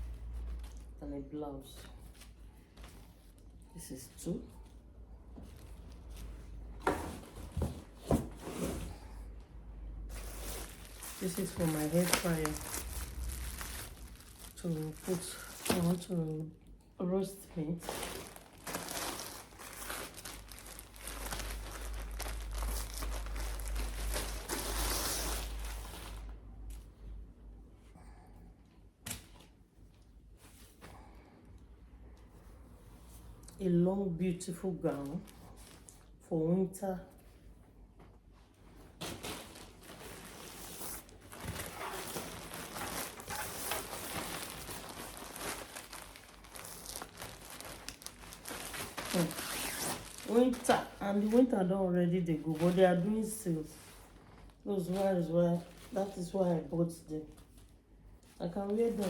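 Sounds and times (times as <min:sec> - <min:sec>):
packaging crinkling: 0:10.1 - 0:16.0, 0:17.8 - 0:26.3, 0:39.0 - 0:51.4.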